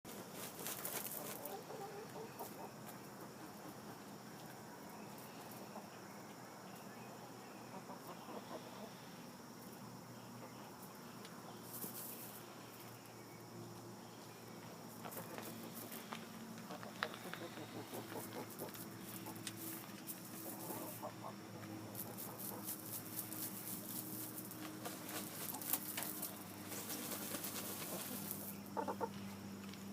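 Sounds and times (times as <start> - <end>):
chickens scratching ground: 0.1 - 5.8, 10.4 - 13.1, 13.8 - 29.9
chickens clucking softly: 1.1 - 4.6, 7.6 - 9.7, 16.7 - 19.5, 20.3 - 23.0, 27.0 - 29.4.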